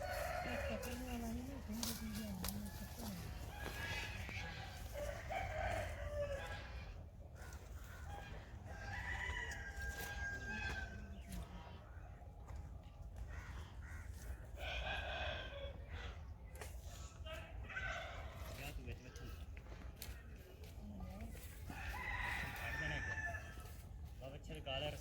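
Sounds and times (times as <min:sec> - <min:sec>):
rooster crowing: 0:00.0 - 0:06.9, 0:08.0 - 0:11.3, 0:21.7 - 0:23.8.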